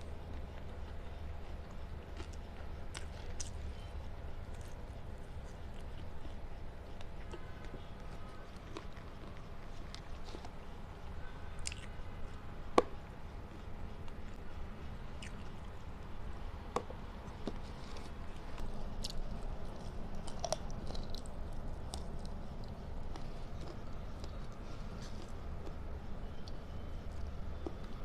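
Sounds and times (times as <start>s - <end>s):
person chewing and biting food: 1.6s - 16.0s, 16.6s - 28.0s
small wet clicks and crunches: 17.3s - 25.8s.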